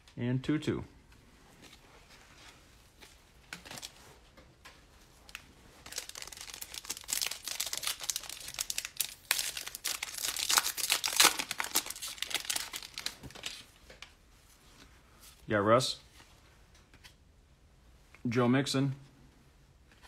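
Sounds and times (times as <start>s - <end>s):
foil wrapper tearing and crinkling: 5.8s - 13.5s.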